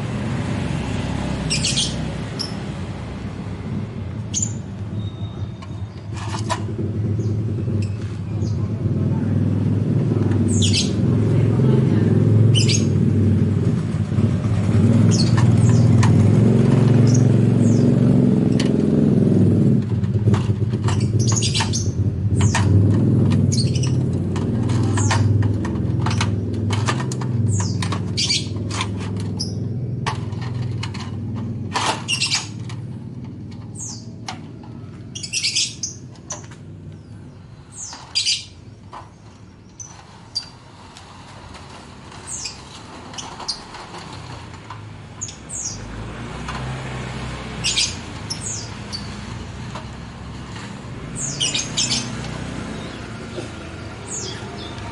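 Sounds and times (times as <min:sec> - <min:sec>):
low engine-like rumble: 0:00.0 - 0:46.6
small birds chirping: 0:01.4 - 0:02.7, 0:04.2 - 0:06.2, 0:07.0 - 0:11.5, 0:12.5 - 0:13.0, 0:14.8 - 0:16.1, 0:16.9 - 0:18.1, 0:20.8 - 0:31.0, 0:32.0 - 0:32.8, 0:33.4 - 0:40.8, 0:42.1 - 0:44.1, 0:45.2 - 0:45.9, 0:47.5 - 0:49.4, 0:50.0 - 0:54.9.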